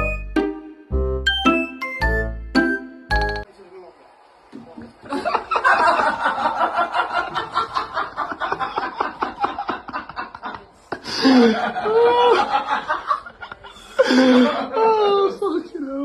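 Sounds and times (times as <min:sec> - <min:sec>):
person laughing: 0:08.6 - 0:12.6.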